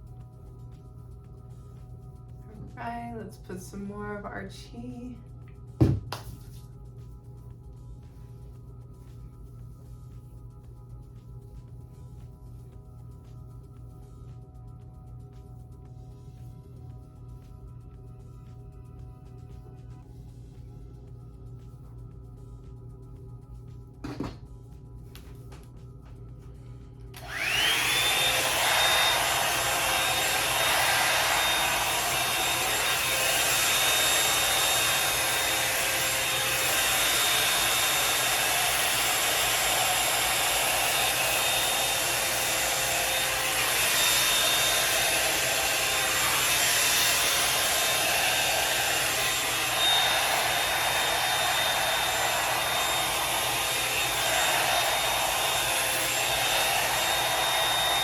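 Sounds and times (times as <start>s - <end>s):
hair dryer motor whine: 24.0s - 24.4s, 27.0s - 58.0s.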